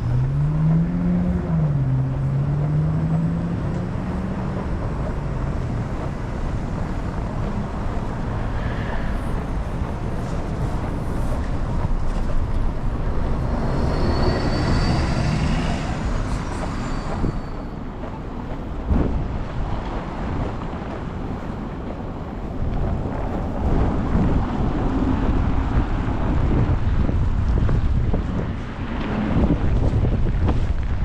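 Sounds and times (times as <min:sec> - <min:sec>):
city traffic noise: 0:00.0 - 0:31.0
wind buffeting microphone: 0:00.0 - 0:31.0
high-pitched vehicle squeal: 0:07.4 - 0:18.0.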